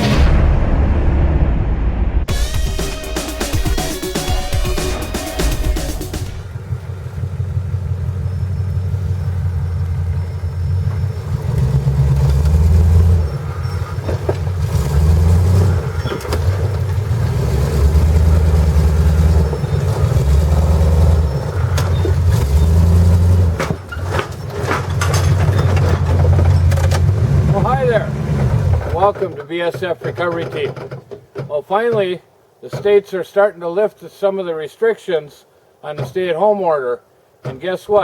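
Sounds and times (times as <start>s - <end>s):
truck engine revving: 0.0s - 29.3s.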